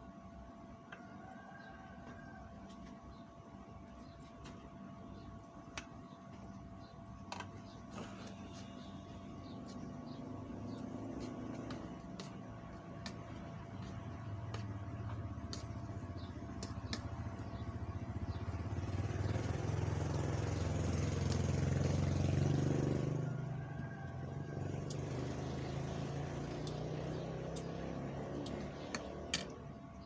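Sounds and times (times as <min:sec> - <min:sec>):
vehicle engine hum: 0:07.1 - 0:30.0.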